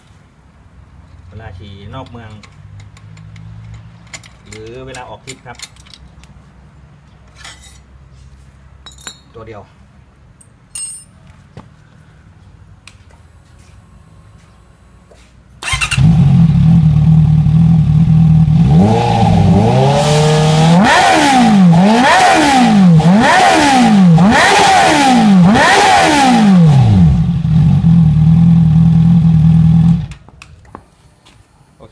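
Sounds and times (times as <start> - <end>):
motorcycle engine revving and idling: 15.6 - 30.2.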